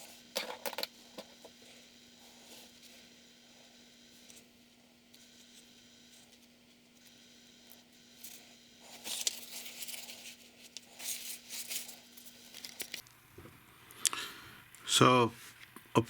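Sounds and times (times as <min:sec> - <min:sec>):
faint steady hum: 0:00.0 - 0:16.0
paper rustling and scraping: 0:08.2 - 0:13.0.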